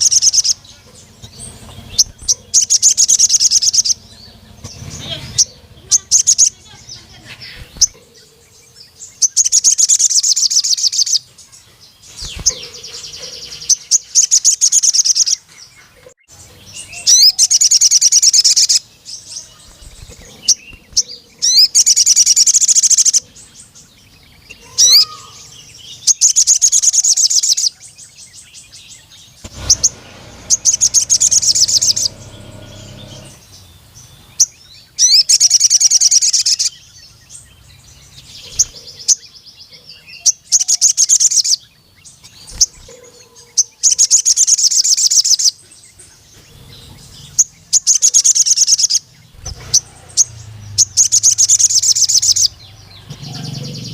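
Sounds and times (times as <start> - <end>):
bird high fast trills: 0.0 - 8.0, 29.4 - 33.6.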